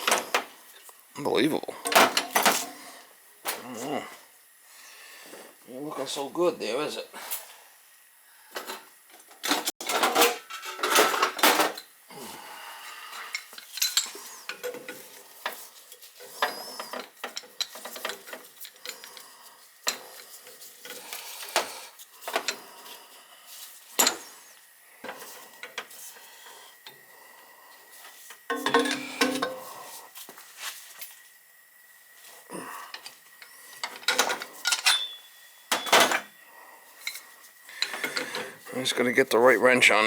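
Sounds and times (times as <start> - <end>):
wrench clanking on metal pipe: 28.5 - 29.6, 34.1 - 36.1.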